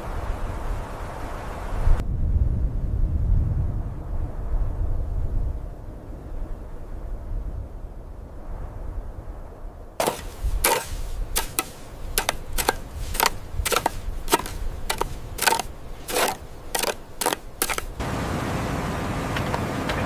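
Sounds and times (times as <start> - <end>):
sharp irregular impacts: 10.0 - 18.0.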